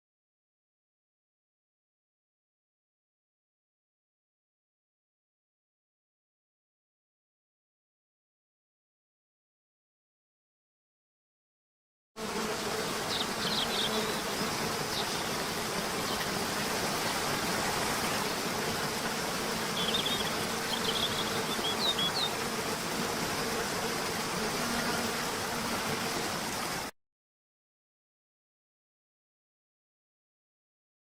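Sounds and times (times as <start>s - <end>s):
even hiss: 12.2s - 26.9s
insect buzz: 12.2s - 26.9s.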